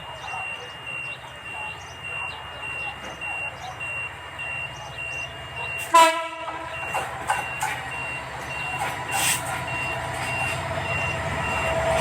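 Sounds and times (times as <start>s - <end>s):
diesel locomotive engine throb: 0.0s - 12.0s
locomotive horn blast: 5.8s - 6.8s
short electronic beeps: 6.7s - 11.8s.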